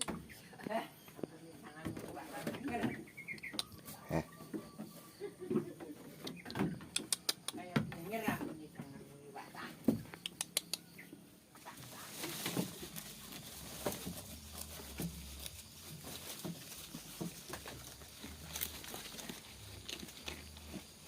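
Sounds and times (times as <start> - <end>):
faint animal calls: 3.0 - 6.5
sharp clicks: 6.2 - 7.6, 10.1 - 10.9.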